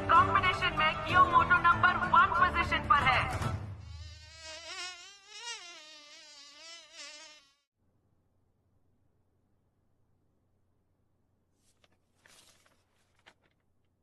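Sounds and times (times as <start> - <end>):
insect whine wavering: 3.9 - 7.6.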